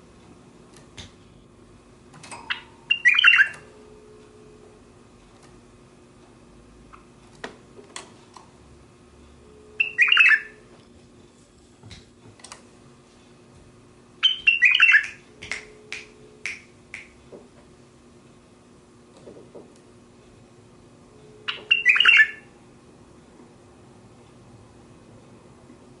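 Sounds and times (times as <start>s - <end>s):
bird chattering: 2.5s - 3.6s, 9.8s - 10.6s, 14.2s - 15.2s, 21.5s - 22.5s.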